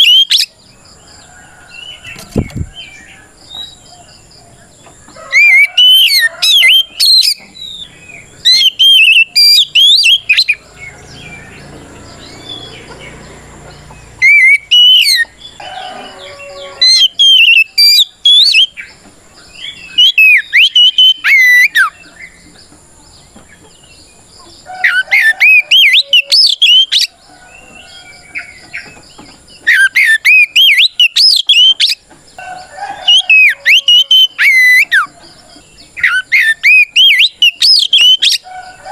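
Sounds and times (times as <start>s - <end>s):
bird singing whistled song: 0.0s - 0.6s, 5.3s - 11.6s, 14.2s - 22.4s, 24.8s - 32.0s, 32.6s - 35.1s, 35.8s - 38.5s.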